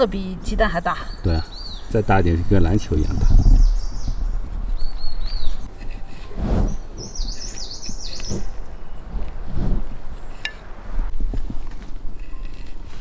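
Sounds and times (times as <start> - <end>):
small bird chirping: 0.0 - 11.0.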